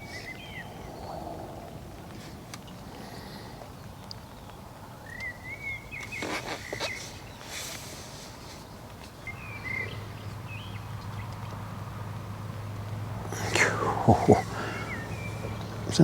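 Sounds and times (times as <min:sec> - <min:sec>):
small bird chirping: 0:00.0 - 0:16.0
brief rustling: 0:06.0 - 0:09.2.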